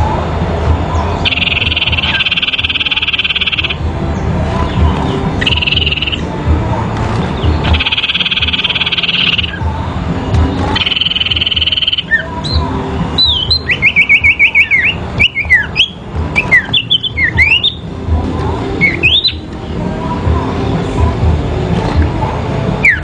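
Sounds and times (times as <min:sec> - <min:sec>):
songbirds whistling and chirping: 0:00.7 - 0:06.4, 0:07.2 - 0:20.3, 0:22.8 - 0:23.0
buzzing bird trill: 0:01.2 - 0:03.8, 0:04.7 - 0:06.3, 0:07.4 - 0:09.9, 0:10.6 - 0:17.9.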